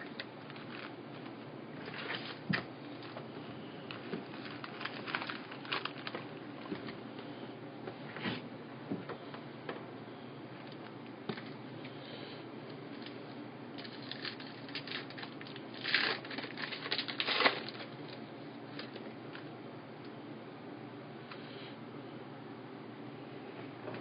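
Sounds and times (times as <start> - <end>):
card wrappers crinkling: 0.0 - 3.2, 3.9 - 7.0, 13.8 - 18.2
wrapper tearing: 4.3 - 6.3, 13.8 - 18.0.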